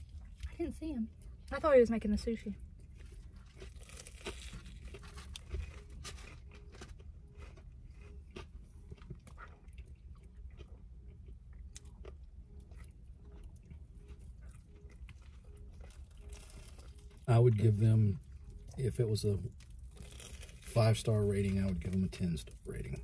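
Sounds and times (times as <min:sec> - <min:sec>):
chewing and crunching fried food: 0:00.0 - 0:23.0.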